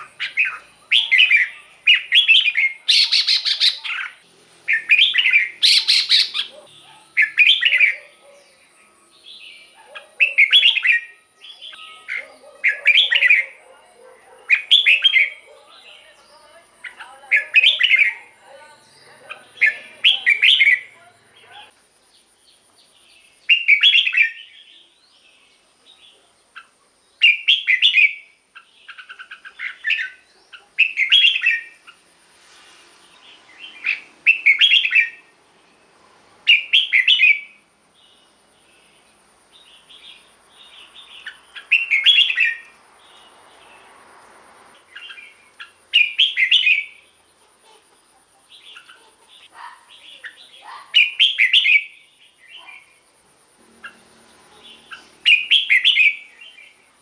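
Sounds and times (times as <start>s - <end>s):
soft bird chattering: 0.0s - 8.6s, 26.6s - 32.0s, 44.9s - 53.0s
bird warbling song: 0.0s - 32.0s, 33.1s - 35.3s, 36.5s - 43.9s, 44.8s - 47.8s, 48.4s - 53.1s, 53.7s - 56.8s.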